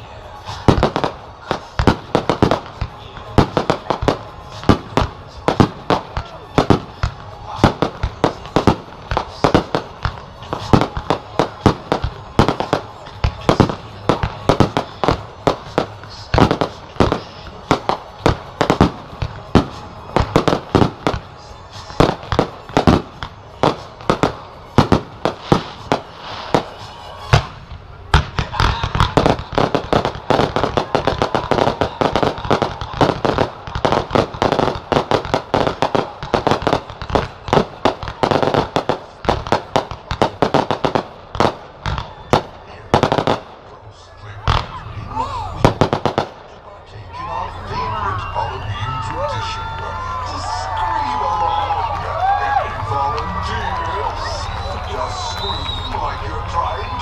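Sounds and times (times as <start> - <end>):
crackling firework barrage: 0.0 - 57.0
firework bangs: 0.0 - 57.0.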